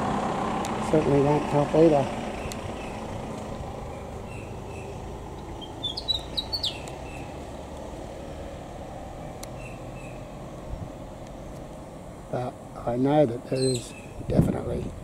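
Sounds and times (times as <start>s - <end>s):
car rumble: 0.0s - 15.0s
bird chirping: 2.3s - 3.2s, 3.8s - 7.7s, 9.2s - 10.4s, 13.4s - 14.2s.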